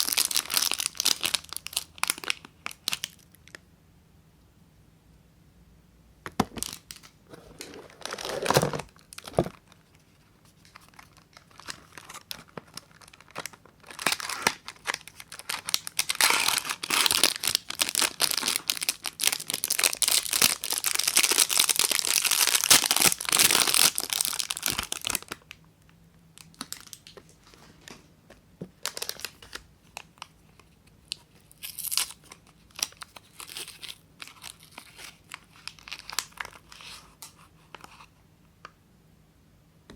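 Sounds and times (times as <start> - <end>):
packaging tearing and crinkling: 0.0 - 3.2, 6.5 - 9.8, 10.6 - 25.5, 28.8 - 37.4.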